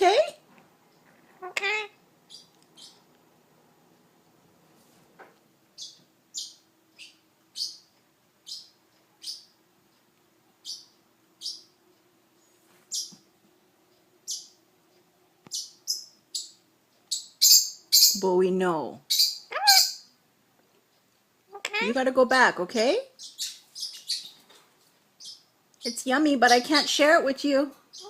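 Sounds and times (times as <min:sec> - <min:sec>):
parrot chirping: 0:01.4 - 0:03.1, 0:05.8 - 0:09.6, 0:10.6 - 0:11.8, 0:12.9 - 0:13.2, 0:14.2 - 0:14.6, 0:15.5 - 0:18.2, 0:19.0 - 0:20.2, 0:21.5 - 0:22.0, 0:23.1 - 0:24.5, 0:25.2 - 0:27.1.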